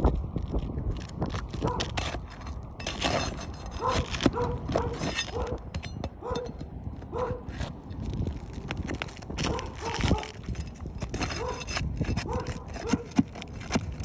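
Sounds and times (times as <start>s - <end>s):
roof shingles being torn loose: 1.8s - 5.7s, 8.9s - 14.0s.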